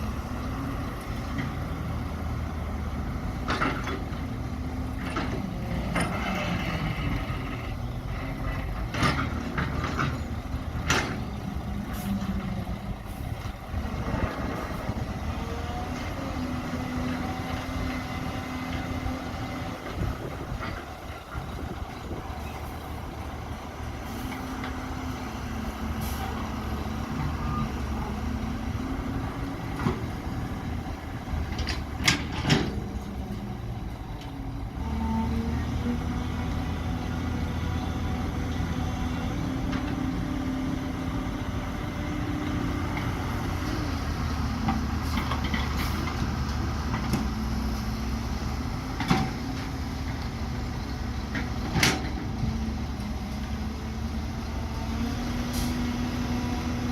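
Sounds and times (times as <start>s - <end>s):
excavator diesel engine: 0.0s - 56.9s.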